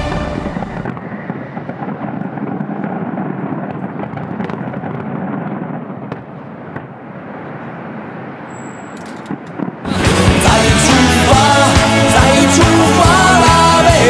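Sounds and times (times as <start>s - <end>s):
sharp firework cracks: 0.0s - 7.7s, 9.1s - 9.9s
fireworks bursting and crackling: 0.0s - 14.0s.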